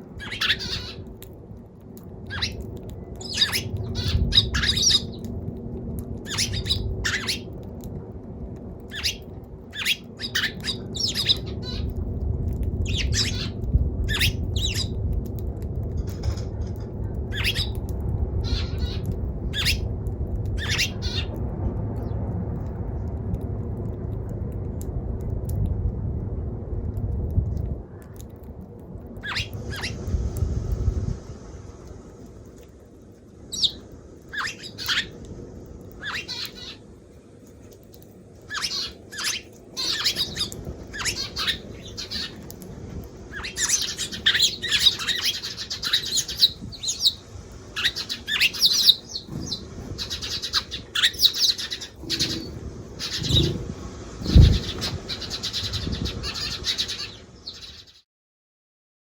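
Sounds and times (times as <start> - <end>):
steady low rumble: 0.0 - 57.9
sparrow chirping and squawking: 0.2 - 1.1, 2.3 - 2.6, 3.2 - 5.2, 6.3 - 7.5, 8.9 - 9.2, 9.8 - 11.9, 12.8 - 15.0, 17.3 - 17.8, 18.4 - 19.8, 20.6 - 21.3, 29.2 - 30.0, 33.5 - 35.2, 36.0 - 36.8, 38.5 - 42.4, 43.3 - 58.0.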